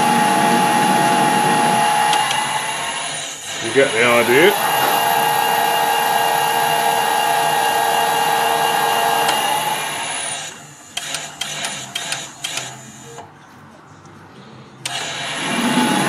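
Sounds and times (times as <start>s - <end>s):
metal lathe running with whine: 0.0s - 10.9s, 14.8s - 16.0s
lathe controls clicking and knocking: 1.8s - 2.7s, 4.5s - 6.5s, 11.0s - 12.8s.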